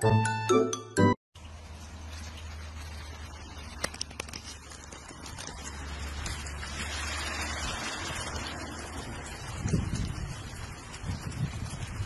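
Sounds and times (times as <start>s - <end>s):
light rain hissing: 1.4s - 12.0s
wind rumble on microphone: 5.1s - 12.0s.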